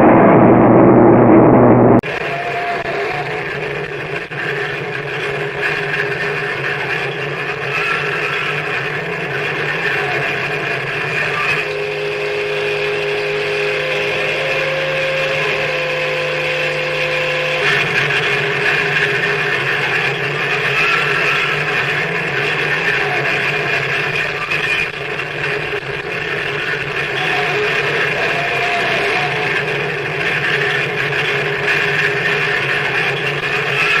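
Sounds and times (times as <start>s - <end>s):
low hum: 0.0s - 2.3s, 11.6s - 19.8s.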